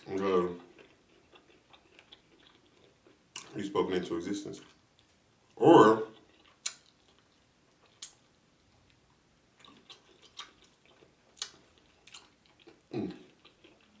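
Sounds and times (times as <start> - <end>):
person chewing with mouth clicks: 0.6 - 3.6, 6.2 - 9.0, 9.6 - 14.0.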